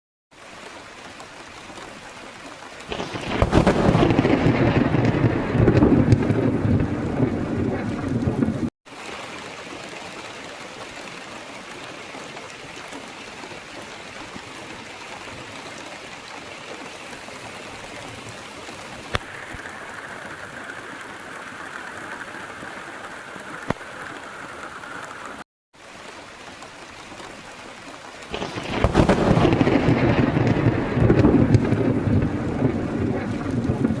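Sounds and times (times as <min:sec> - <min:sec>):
steady rain falling: 0:00.3 - 0:34.0
thunder rumbling: 0:02.9 - 0:08.7, 0:18.4 - 0:25.4, 0:28.3 - 0:34.0.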